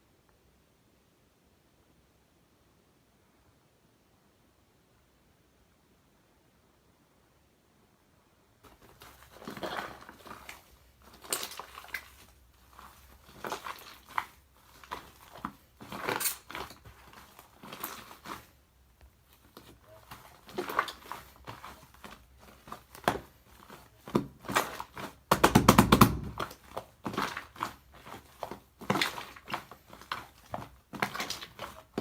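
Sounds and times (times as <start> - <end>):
cake squelching and crunching: 8.6 - 32.0.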